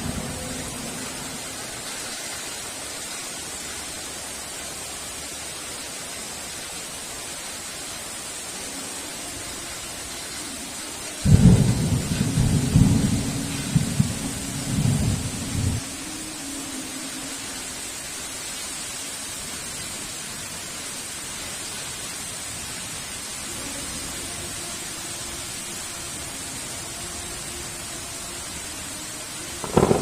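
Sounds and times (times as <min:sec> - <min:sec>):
heavy rain hissing: 0:00.0 - 0:30.0
thunder rumble: 0:11.2 - 0:15.9, 0:29.6 - 0:30.0.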